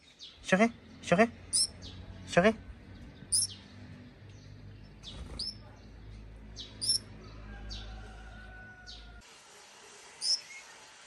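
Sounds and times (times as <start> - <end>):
fledgling begging chirps: 0.0 - 2.0, 3.2 - 3.6, 5.0 - 5.7, 6.6 - 7.1, 10.2 - 10.6.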